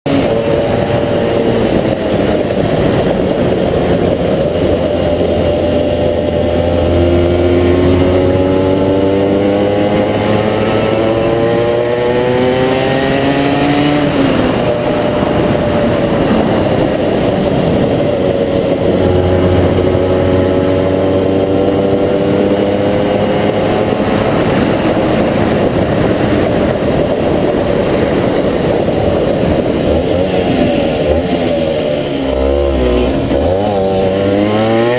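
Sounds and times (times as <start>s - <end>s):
two-stroke engine revving: 0.1s - 34.9s.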